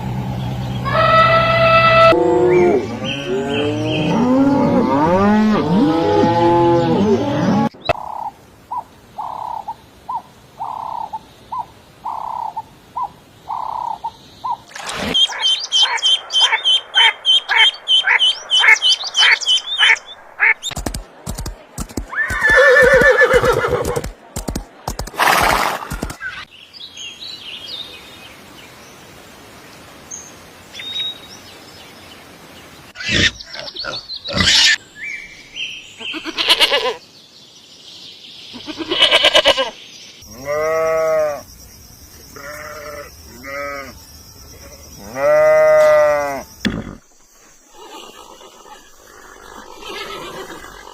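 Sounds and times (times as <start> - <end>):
sharp clicks: 20.6 - 22.5
animal calls: 33.0 - 34.8, 47.7 - 50.9.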